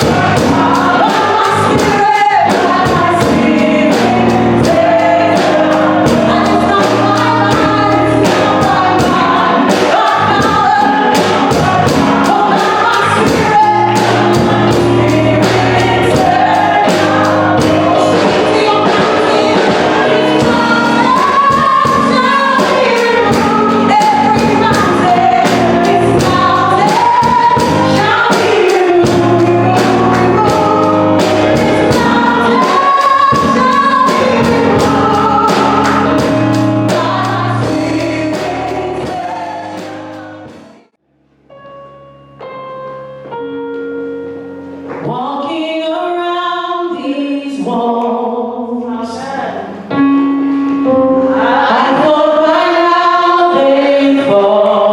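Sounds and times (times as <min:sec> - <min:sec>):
drum beat: 0:00.0 - 0:40.9
group singing gospel song: 0:00.0 - 0:41.0, 0:46.8 - 0:50.0, 0:50.9 - 0:54.9
bass notes: 0:00.0 - 0:45.0.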